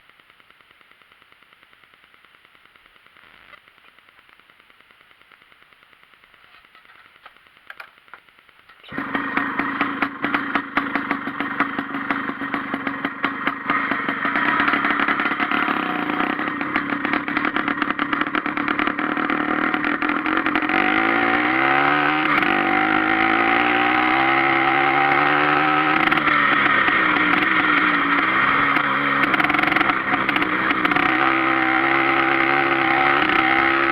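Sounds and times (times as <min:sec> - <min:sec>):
moped engine revving: 0:08.8 - 0:33.9.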